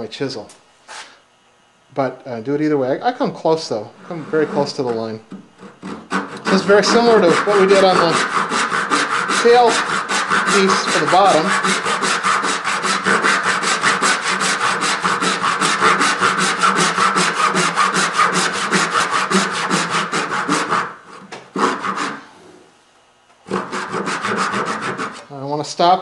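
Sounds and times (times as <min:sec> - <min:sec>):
hand saw cutting wood: 0:04.1 - 0:21.0, 0:21.6 - 0:22.2, 0:23.5 - 0:25.3.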